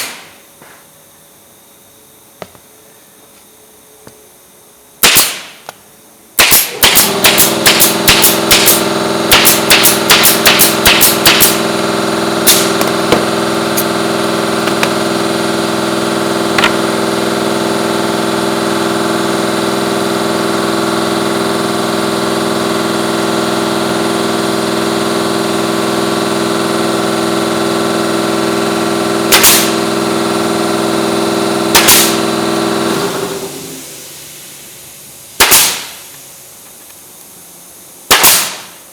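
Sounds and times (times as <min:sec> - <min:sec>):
nail gun firing: 0:00.0 - 0:00.4, 0:05.0 - 0:05.7, 0:06.4 - 0:15.1, 0:16.5 - 0:16.9, 0:29.2 - 0:30.0, 0:31.6 - 0:33.3, 0:35.4 - 0:36.1, 0:38.1 - 0:38.8
air compressor running: 0:06.4 - 0:38.9.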